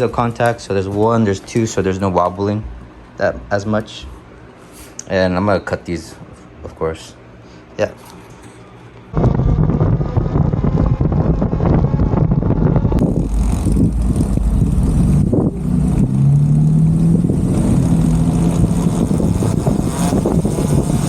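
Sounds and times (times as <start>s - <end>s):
dirt bike riding noise: 9.2s - 21.0s
wind rush: 9.2s - 21.0s.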